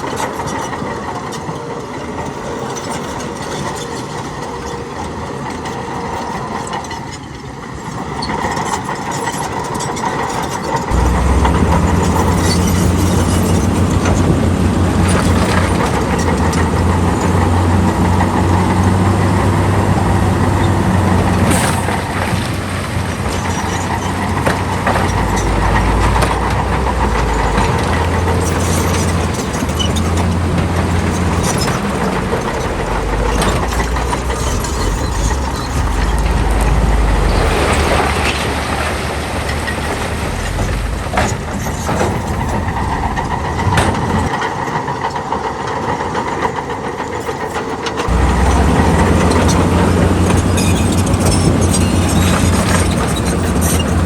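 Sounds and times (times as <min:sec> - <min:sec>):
heavy diesel machinery running: 0:10.7 - 0:54.0
metal clanks and knocks: 0:10.9 - 0:44.4.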